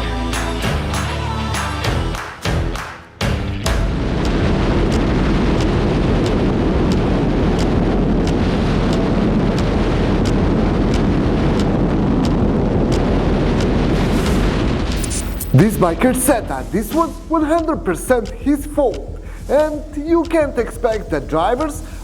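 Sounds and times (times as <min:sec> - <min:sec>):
wind rushing: 0:04.0 - 0:19.6
faint regular ticks: 0:04.2 - 0:14.4, 0:16.1 - 0:22.0.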